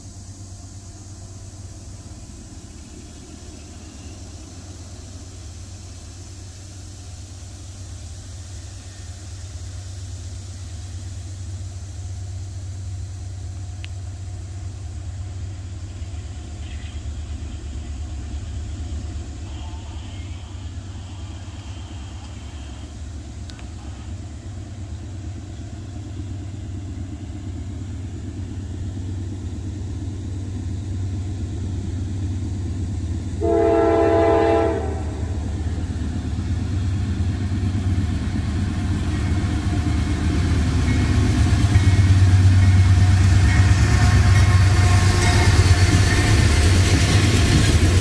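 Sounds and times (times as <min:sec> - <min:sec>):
diesel locomotive engine rumble: 0:00.0 - 0:48.0
locomotive horn blast: 0:33.4 - 0:35.6.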